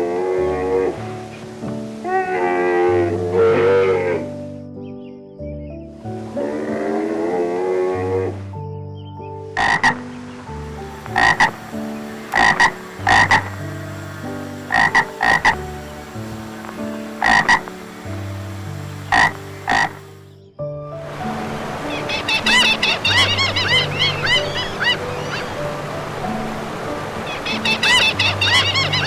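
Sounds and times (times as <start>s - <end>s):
sustained music notes: 9.5s - 20.4s, 21.0s - 29.0s
frog croaking: 9.6s - 20.3s, 21.1s - 29.0s.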